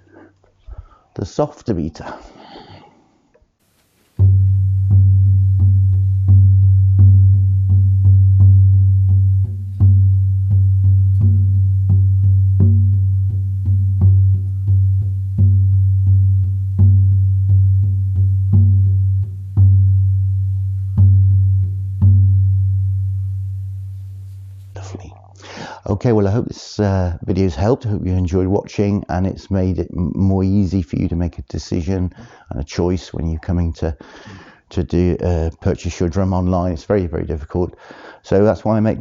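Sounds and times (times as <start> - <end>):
frame drum booming: 4.2 - 24.2.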